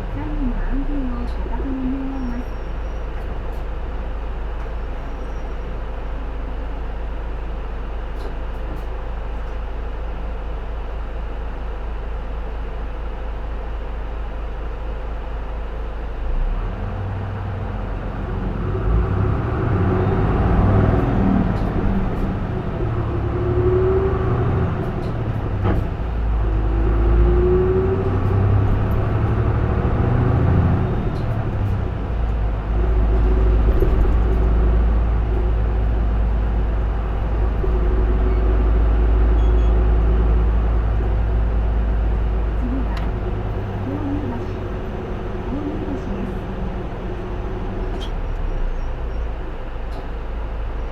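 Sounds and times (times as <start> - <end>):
bus diesel engine: 0.0 - 50.9
rising engine whine: 16.4 - 50.9.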